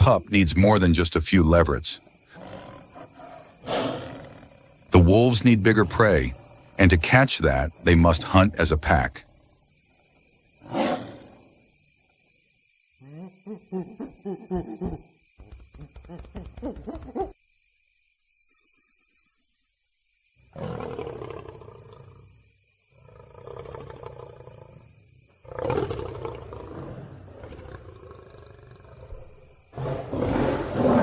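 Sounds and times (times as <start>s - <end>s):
wolves growling and snarling: 2.3s - 6.7s, 10.6s - 11.4s, 20.5s - 22.2s, 23.1s - 31.0s.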